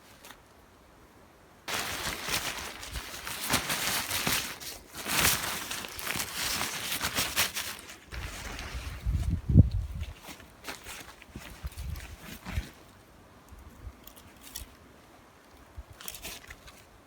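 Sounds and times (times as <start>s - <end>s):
footsteps crunching through snow: 1.7s - 12.8s.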